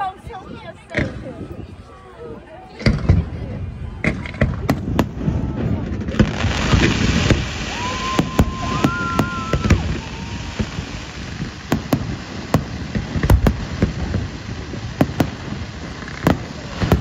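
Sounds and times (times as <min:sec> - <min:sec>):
fireworks bangs: 0:02.7 - 0:17.0
fireworks crackle: 0:02.8 - 0:17.0
high firework whistle: 0:06.5 - 0:11.9.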